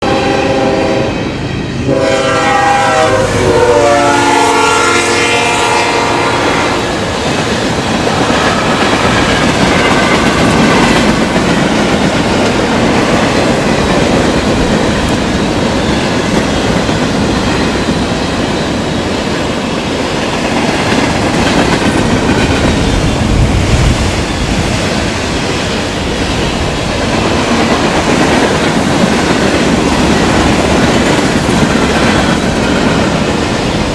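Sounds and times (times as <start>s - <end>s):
train horn sounding a chord: 0.0s - 7.0s
train rushing and rumbling past: 0.0s - 33.9s.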